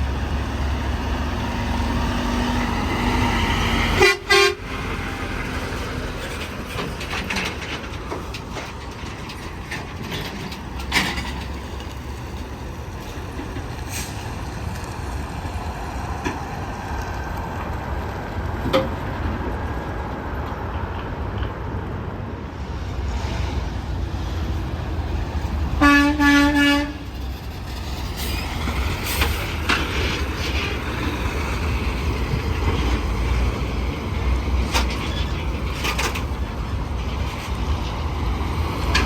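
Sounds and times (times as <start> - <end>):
heavy highway traffic rumble: 0.0 - 39.0
truck air horn blast: 3.8 - 4.8, 25.8 - 27.1.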